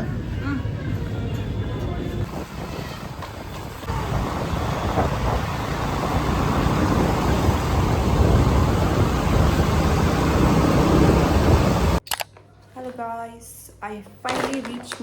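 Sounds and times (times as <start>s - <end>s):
vehicle rumble and hiss: 0.0s - 12.0s.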